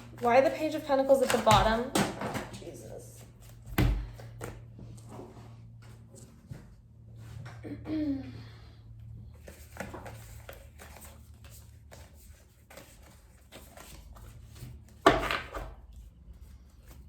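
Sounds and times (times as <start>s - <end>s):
cards rustling and tapping: 0.0s - 5.2s, 9.3s - 17.0s.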